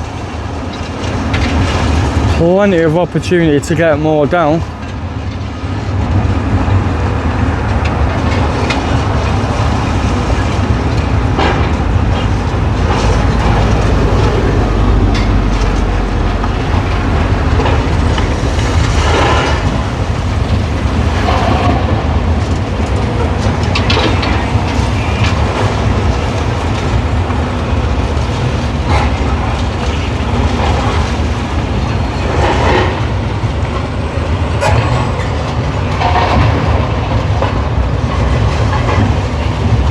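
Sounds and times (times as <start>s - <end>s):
diesel engine running: 11.7s - 23.4s.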